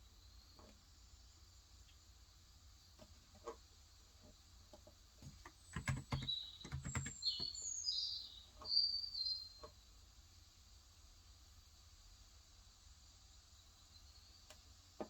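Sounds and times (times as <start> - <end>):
bird chirping: 5.5 - 9.7
keyboard keystrokes: 5.7 - 7.2.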